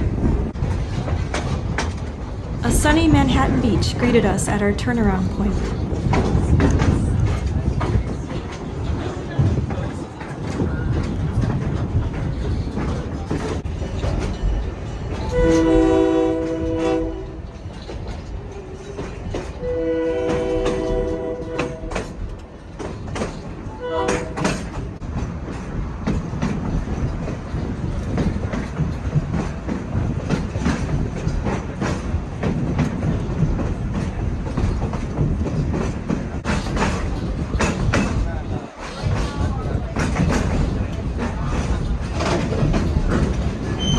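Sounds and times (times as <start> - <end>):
train wheels rumbling and clicking: 0.0 - 43.9
train horn blasts: 15.3 - 17.5, 19.6 - 22.1, 23.8 - 24.6.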